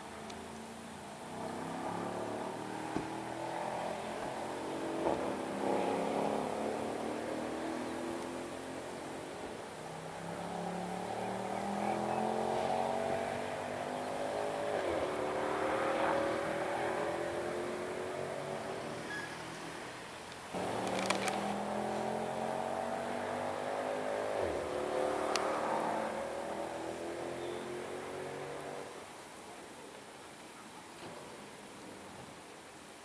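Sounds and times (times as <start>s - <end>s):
car engine revving: 0.4s - 19.9s, 20.5s - 29.0s
sharp cracks: 20.6s - 21.6s.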